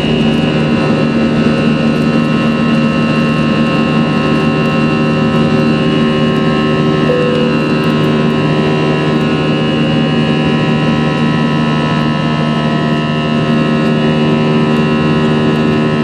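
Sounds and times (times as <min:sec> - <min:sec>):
jet engine drone in cabin: 0:07.1 - 0:08.9.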